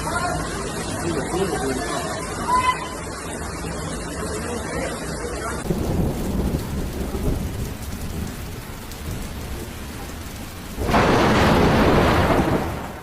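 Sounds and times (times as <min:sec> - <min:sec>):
heavy storm rain: 0:00.0 - 0:13.0.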